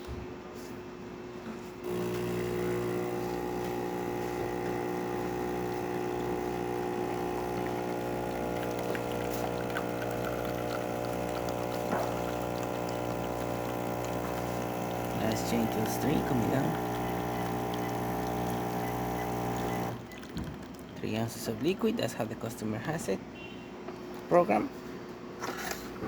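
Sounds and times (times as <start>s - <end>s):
espresso machine pump humming: 1.8s - 20.8s.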